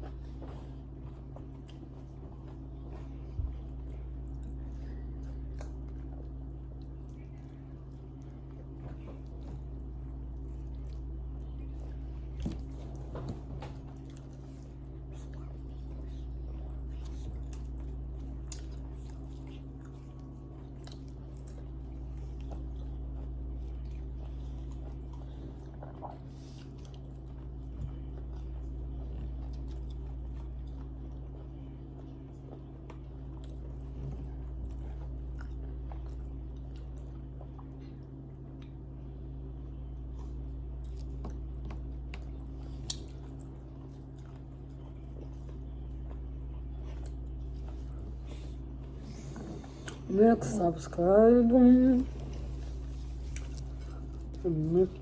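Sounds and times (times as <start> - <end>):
steady low hum: 0.0 - 55.0
person chewing: 13.9 - 50.1, 52.1 - 54.4.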